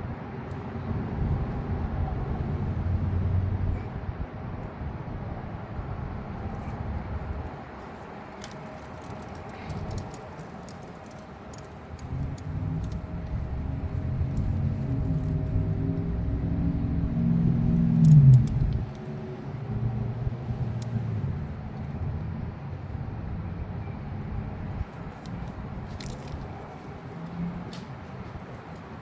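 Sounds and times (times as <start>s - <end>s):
hand tools clicking: 8.4s - 13.0s
low rumble: 12.0s - 26.6s.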